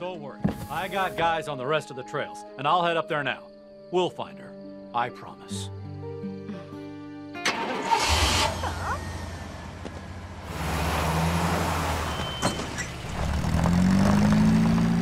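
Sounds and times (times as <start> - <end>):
vehicle engine starting and running: 7.4 - 15.0.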